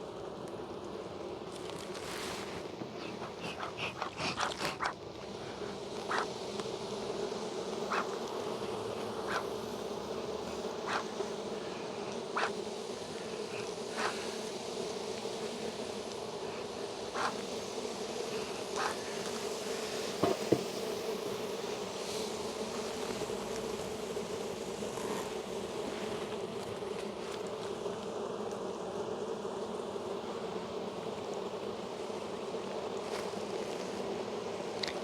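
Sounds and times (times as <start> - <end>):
bees buzzing: 0.0 - 35.0
clicks and knocks of hive frames: 20.1 - 21.1.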